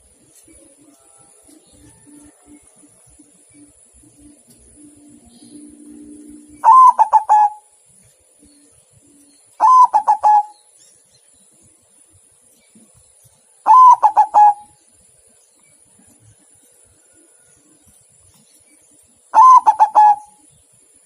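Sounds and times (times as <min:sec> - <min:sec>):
dove cooing: 0:01.7 - 0:07.7, 0:09.6 - 0:10.6, 0:13.6 - 0:14.7, 0:19.3 - 0:20.5.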